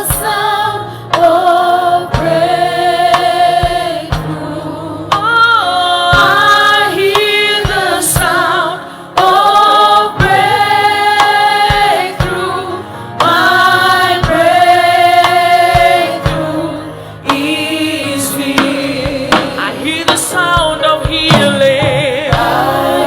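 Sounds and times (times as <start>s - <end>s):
choir singing gospel: 0.0s - 23.0s
low drum hits: 18.6s - 23.0s.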